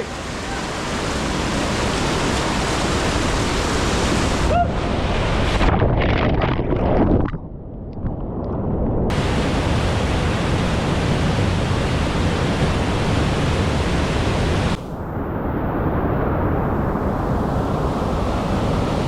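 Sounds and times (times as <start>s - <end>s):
water rushing down waterfall: 0.0s - 5.5s, 9.1s - 14.9s.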